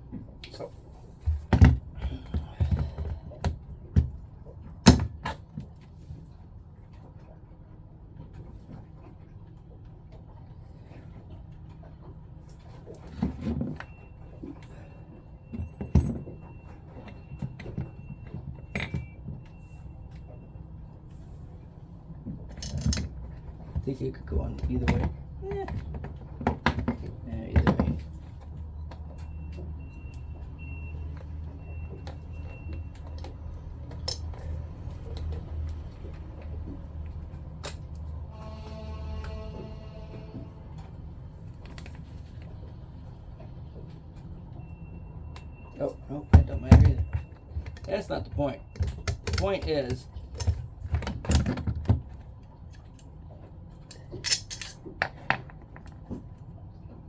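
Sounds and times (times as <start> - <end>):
small pump parts clinking: 18.6 - 19.2, 22.4 - 25.1, 32.0 - 36.2, 46.0 - 53.2, 53.9 - 56.3
clicks and taps of pump parts: 46.3 - 53.0.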